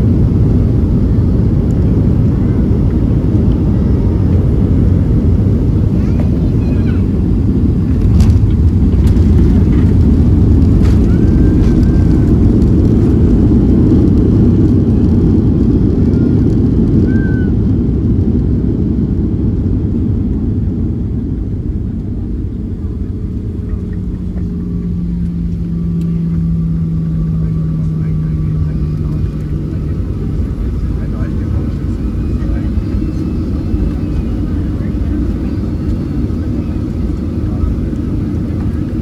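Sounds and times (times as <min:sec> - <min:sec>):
jet engine rumble in cabin: 0:00.0 - 0:39.0
steady hum: 0:20.7 - 0:39.0.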